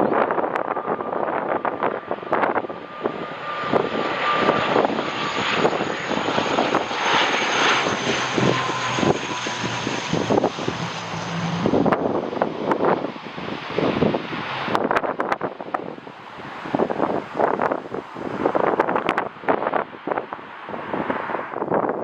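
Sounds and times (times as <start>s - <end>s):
airliner engines passing: 0.0s - 22.0s
wind buffeting microphone: 0.0s - 22.0s.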